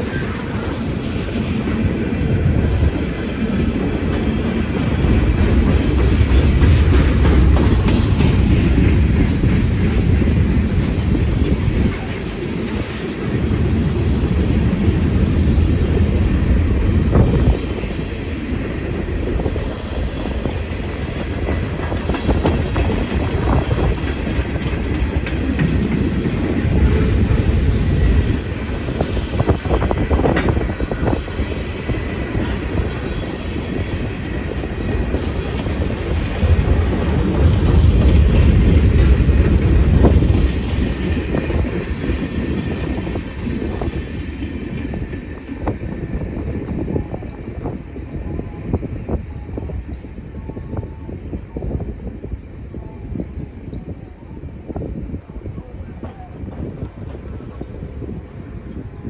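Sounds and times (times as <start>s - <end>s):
wheels clicking over rail joints: 0.0s - 46.8s
train cars rumbling past: 0.0s - 59.0s.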